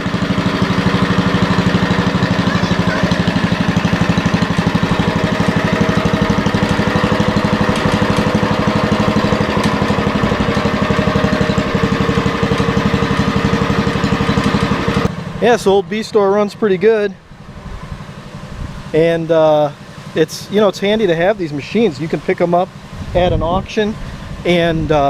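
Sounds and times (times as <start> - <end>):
welder generator engine running: 0.0 - 25.0.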